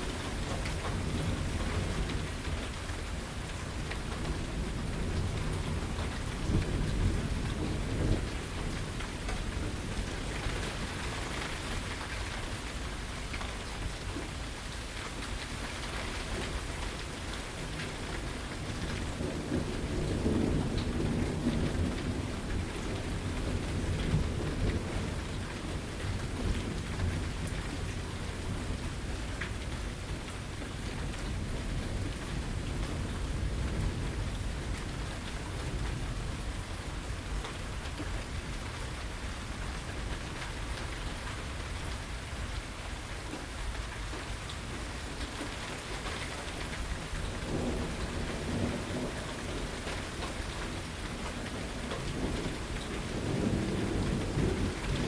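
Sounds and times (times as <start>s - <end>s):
steady rain falling: 0.0s - 55.0s
thunder rumbling: 18.6s - 37.4s, 46.5s - 55.0s.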